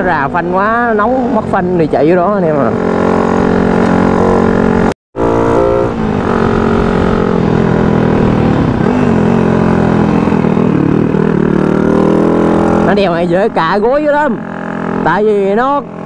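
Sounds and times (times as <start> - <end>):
motorcycle engine running: 2.5 - 16.0.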